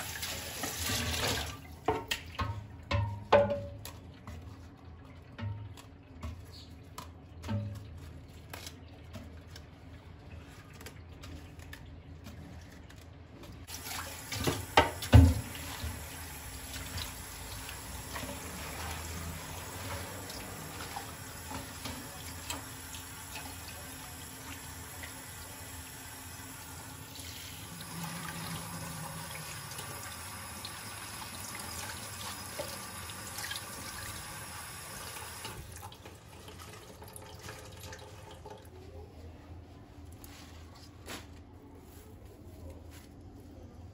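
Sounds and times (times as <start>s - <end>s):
tap running into a sink: 13.9s - 23.8s.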